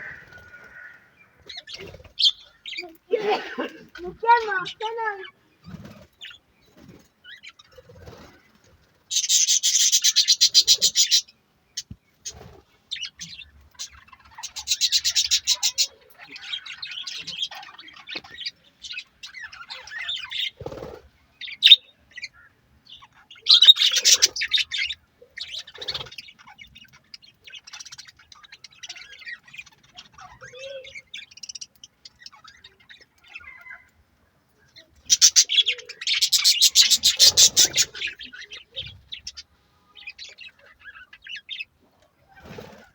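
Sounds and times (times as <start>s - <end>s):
budgerigars chirping and chattering: 0.0s - 33.9s, 34.7s - 41.8s.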